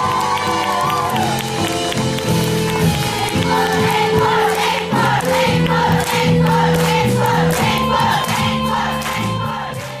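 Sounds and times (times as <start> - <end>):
live band music: 0.0 - 10.0
voices singing: 3.1 - 10.0.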